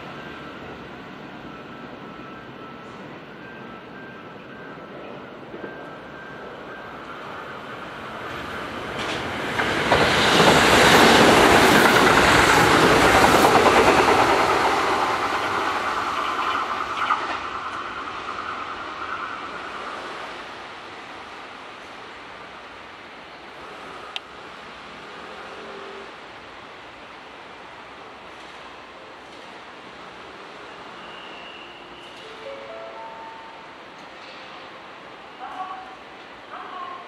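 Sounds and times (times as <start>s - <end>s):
thin steady train whine: 0.0s - 37.0s
train wheels clattering over rail joints: 8.9s - 16.1s.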